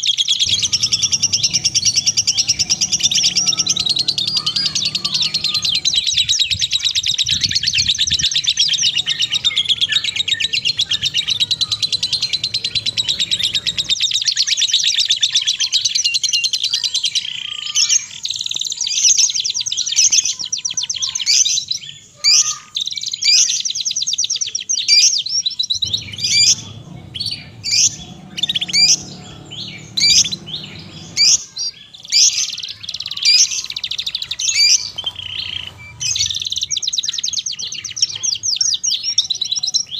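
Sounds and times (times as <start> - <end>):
songbird rapid high trill: 0.4 - 14.3, 25.8 - 31.7.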